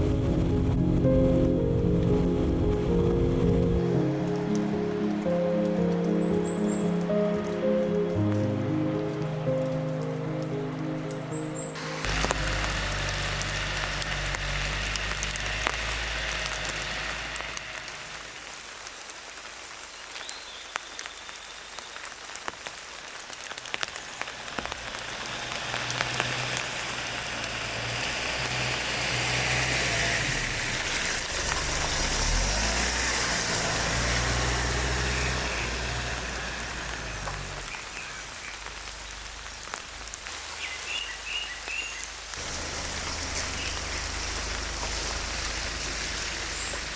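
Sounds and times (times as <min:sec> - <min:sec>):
low rumble: 0:00.0 - 0:04.8
steady rain falling: 0:00.0 - 0:46.9.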